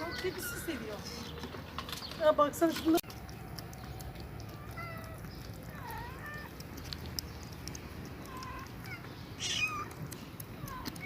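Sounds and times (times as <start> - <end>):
kitten mewing: 8.2 - 11.0.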